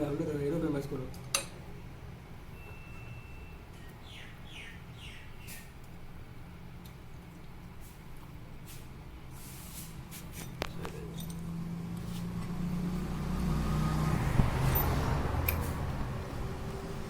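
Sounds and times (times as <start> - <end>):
engine running at low speed: 10.7 - 17.0.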